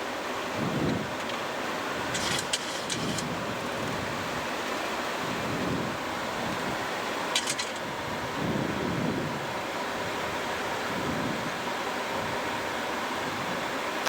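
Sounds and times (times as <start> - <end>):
aircraft engine noise: 0.0 - 14.0.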